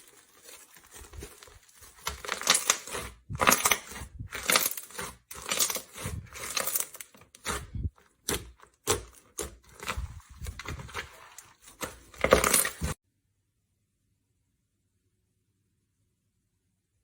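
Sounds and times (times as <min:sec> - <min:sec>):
slime crackling and popping: 0:00.0 - 0:07.6.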